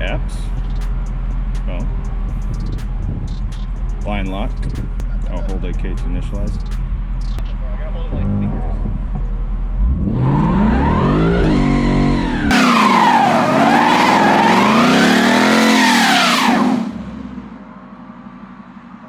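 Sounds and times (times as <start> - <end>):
car engine revving: 0.0 - 19.0
tyres squealing: 10.7 - 16.8.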